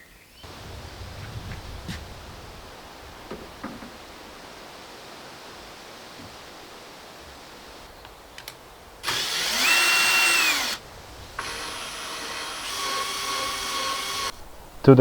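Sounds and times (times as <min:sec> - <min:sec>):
power tool motor whining: 0:09.0 - 0:14.3.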